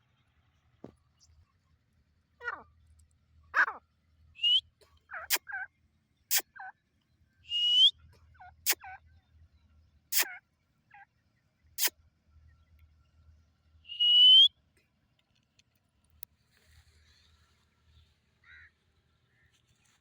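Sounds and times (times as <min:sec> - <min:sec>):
rising whistles: 0:04.4 - 0:04.6, 0:07.5 - 0:07.9, 0:13.9 - 0:14.5
francolins calling: 0:04.4 - 0:05.4, 0:13.9 - 0:14.5.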